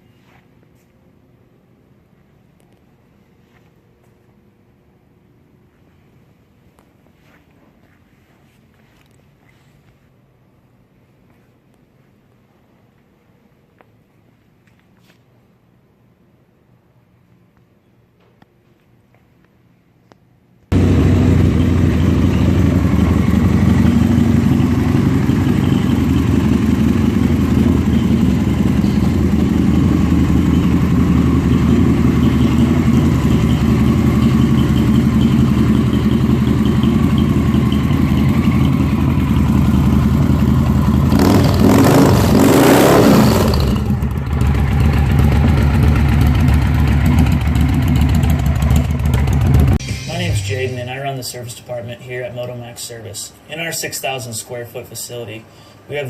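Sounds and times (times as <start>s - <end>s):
motorcycle engine idling: 20.7s - 50.7s.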